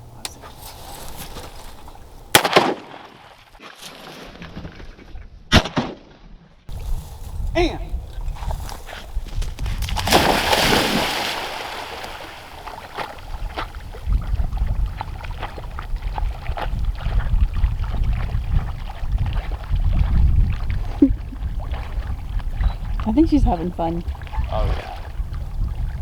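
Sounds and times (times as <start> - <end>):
dog splashing through water: 9.6 - 23.1.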